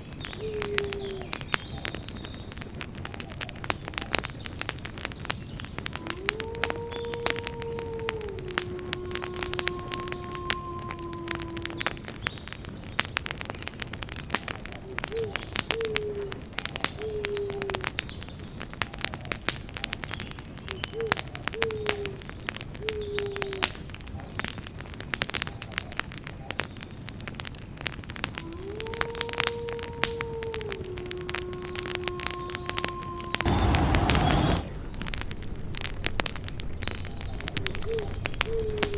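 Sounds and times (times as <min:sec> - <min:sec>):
campfire crackling and popping: 0:00.0 - 0:38.9
low bird call: 0:31.8 - 0:34.9.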